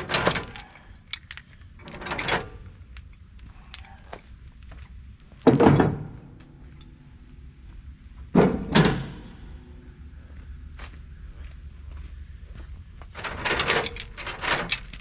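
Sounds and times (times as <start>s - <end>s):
metal clanks and knocks: 0.0s - 4.6s, 5.2s - 6.4s, 8.3s - 9.4s, 13.0s - 15.0s.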